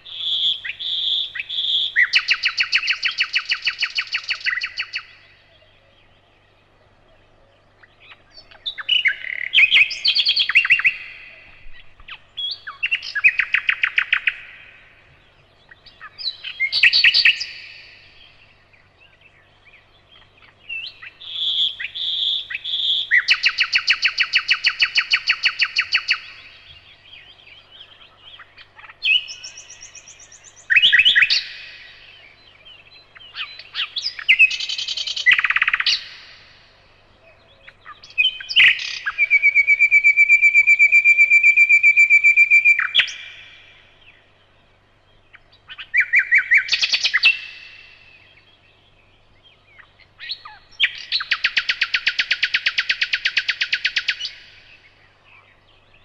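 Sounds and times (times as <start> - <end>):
nightingale singing trills: 0.0 - 56.0.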